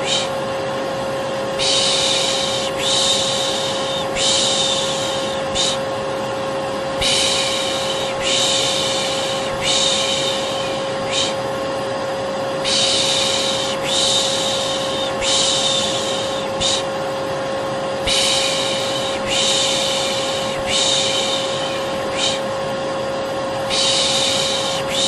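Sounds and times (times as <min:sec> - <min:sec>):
person shushing: 0:00.0 - 0:00.4, 0:01.6 - 0:05.9, 0:07.0 - 0:11.4, 0:12.6 - 0:17.0, 0:18.0 - 0:22.5, 0:23.7 - 0:25.0
vacuum cleaner motor droning: 0:00.0 - 0:25.0.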